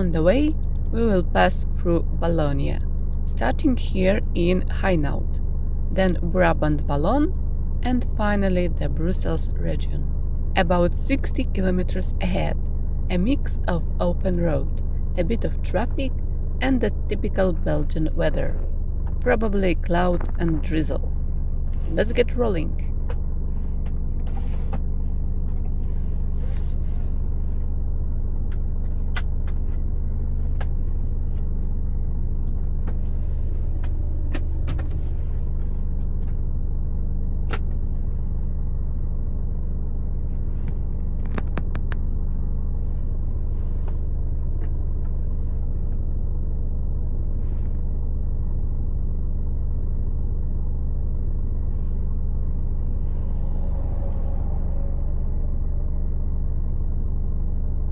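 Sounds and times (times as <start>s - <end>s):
truck diesel engine drone: 0.0s - 27.0s, 51.0s - 57.9s.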